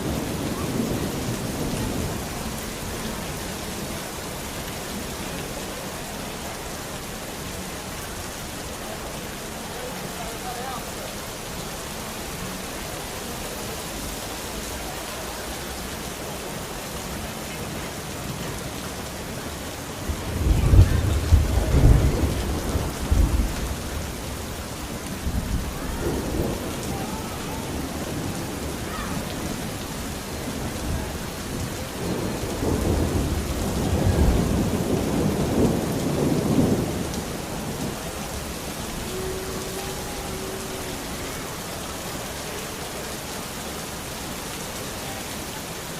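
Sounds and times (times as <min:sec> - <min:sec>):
thunder rumbling: 0:00.0 - 0:04.5, 0:18.2 - 0:41.8
steady rain: 0:00.0 - 0:45.9.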